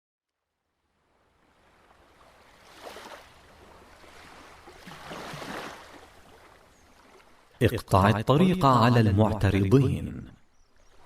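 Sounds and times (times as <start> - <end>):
waves washing in: 1.0 - 7.6.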